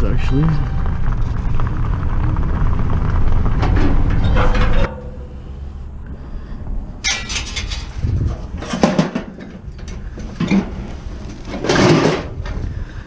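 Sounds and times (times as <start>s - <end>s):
vehicle running: 0.0s - 12.7s
metal clunks and rattles: 3.4s - 5.4s, 7.0s - 12.7s.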